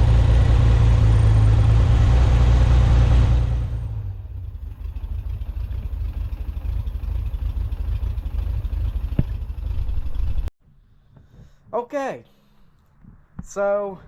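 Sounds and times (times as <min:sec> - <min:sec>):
car engine idling: 0:00.0 - 0:10.5.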